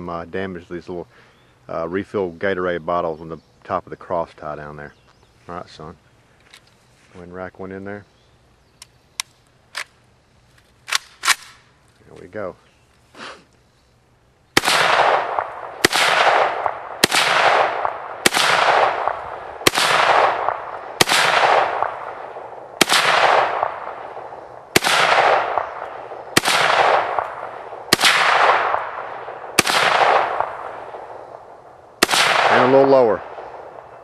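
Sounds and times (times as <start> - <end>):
rifle single shots with echo: 10.9 - 11.7, 14.5 - 34.0.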